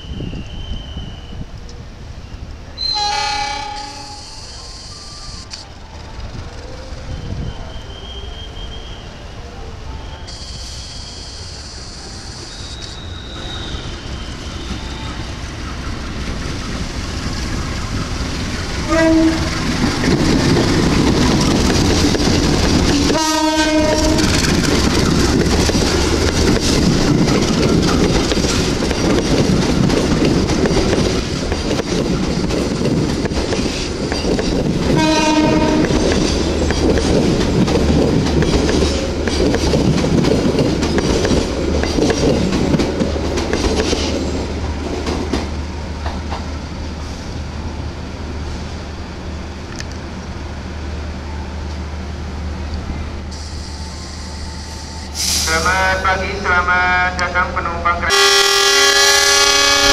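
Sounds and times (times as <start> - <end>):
train rumbling and clattering: 0.0 - 10.4, 11.4 - 59.9
train horn blasts: 2.8 - 4.4, 18.8 - 19.7, 23.0 - 24.4, 34.9 - 36.0, 55.4 - 59.9.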